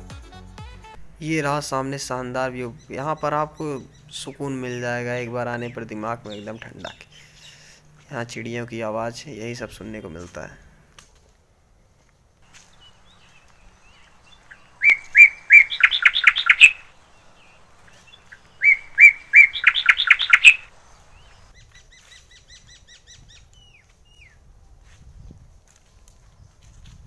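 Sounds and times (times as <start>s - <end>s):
bird singing loudly: 1.8s - 7.7s, 12.8s - 24.4s
faint rapid bird notes: 12.7s - 24.4s.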